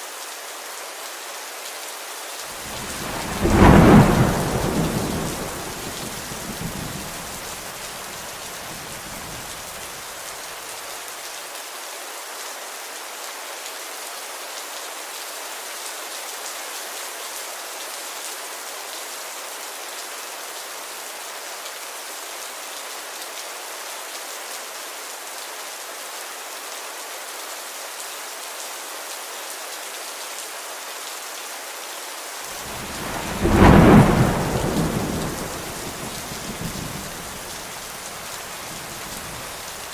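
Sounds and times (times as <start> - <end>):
rain hiss: 0.0 - 39.9
sharp thunderclap: 2.6 - 8.0, 32.6 - 39.8
thunder rumble: 2.6 - 9.8, 32.6 - 39.9.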